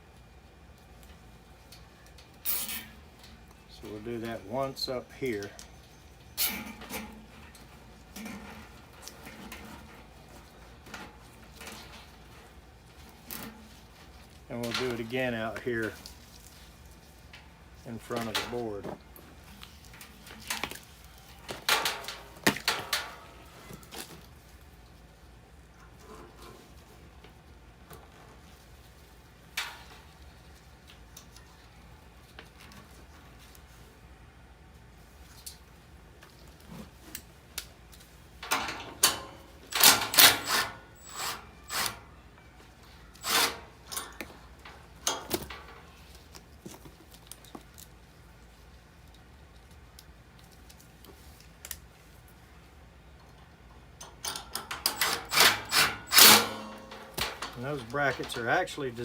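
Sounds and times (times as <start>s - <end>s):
wiring clicks and scrapes: 37.9s - 42.1s, 43.1s - 46.4s, 54.0s - 59.0s.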